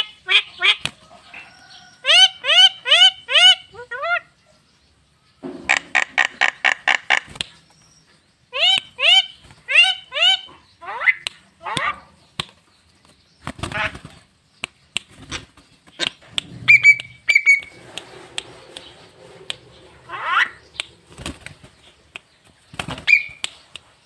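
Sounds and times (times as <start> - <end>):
bird sharp clicks: 5.7 - 7.7, 11.2 - 12.7, 13.4 - 19.9, 20.5 - 24.0
bird rising calls: 15.3 - 22.0
bird whistled notes: 16.5 - 18.9, 23.0 - 23.4.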